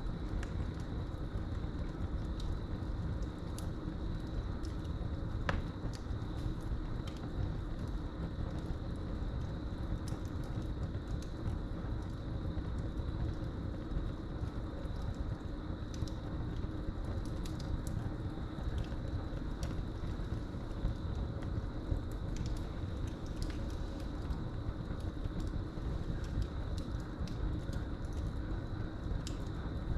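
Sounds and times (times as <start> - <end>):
fire crackles and pops: 0.0 - 29.9
fire flames rushing: 0.0 - 29.9.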